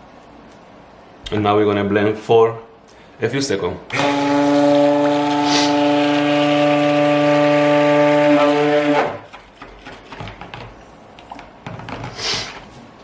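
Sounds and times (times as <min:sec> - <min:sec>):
stick blender running: 0:03.9 - 0:09.3.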